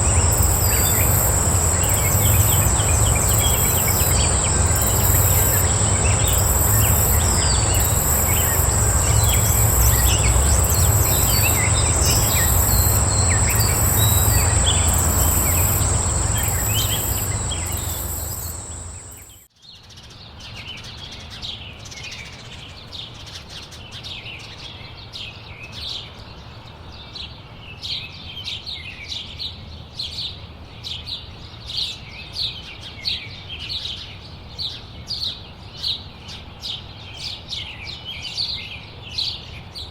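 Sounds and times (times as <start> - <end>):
songbirds chirping: 0.0 - 19.3
high steady whine: 0.0 - 19.4
steady background noise: 0.0 - 19.5.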